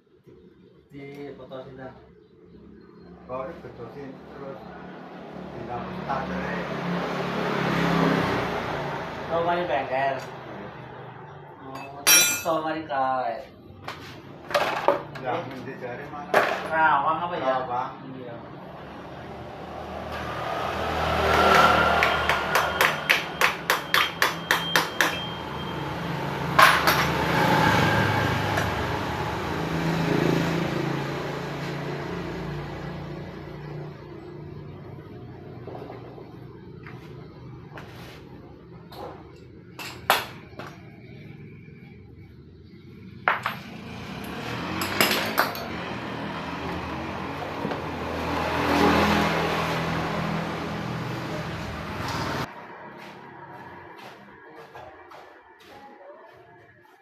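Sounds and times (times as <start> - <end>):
hammer striking metal: 11.8 - 12.6, 21.5 - 25.4
tools clinking on metal: 11.8 - 12.6.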